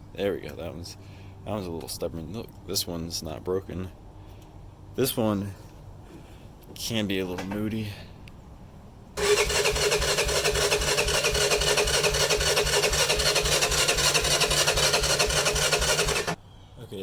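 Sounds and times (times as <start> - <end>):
engine cranking on starter: 9.2 - 16.4.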